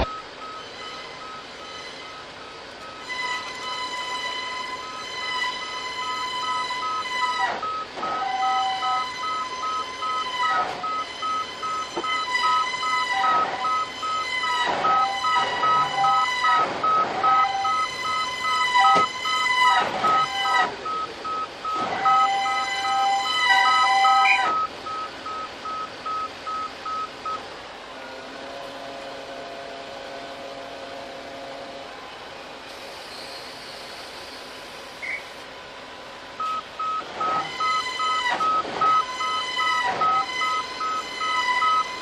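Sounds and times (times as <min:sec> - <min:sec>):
horn blasts: 0:03.0 - 0:21.0, 0:21.8 - 0:24.6, 0:28.0 - 0:32.1
fast electronic beeping: 0:36.4 - 0:42.0.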